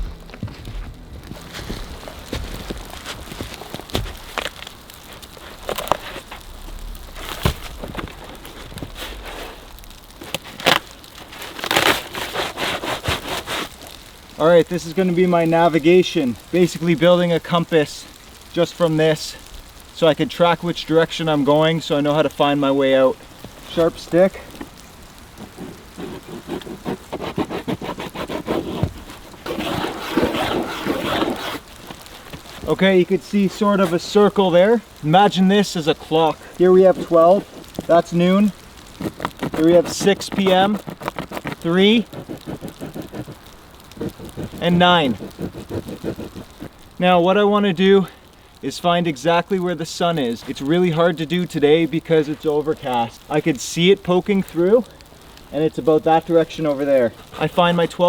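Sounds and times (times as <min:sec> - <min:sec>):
footsteps crunching in snow: 0:00.0 - 0:14.5, 0:22.4 - 0:46.8
stick scratching ground: 0:00.0 - 0:16.7, 0:20.8 - 0:47.0, 0:55.5 - 0:58.0.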